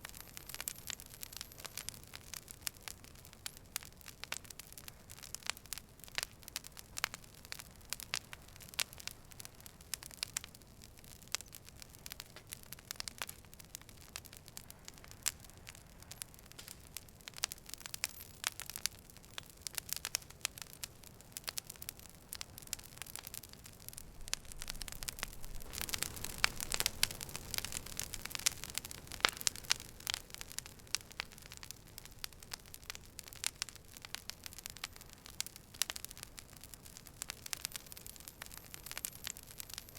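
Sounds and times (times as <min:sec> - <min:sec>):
campfire crackling and popping: 0:00.0 - 0:39.9
rush of flame: 0:24.0 - 0:30.6.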